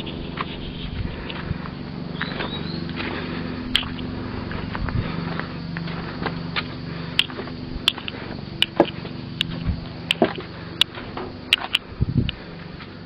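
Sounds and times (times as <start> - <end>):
steady low hum: 0.0 - 13.0
sharp clicks and knocks: 7.2 - 12.4.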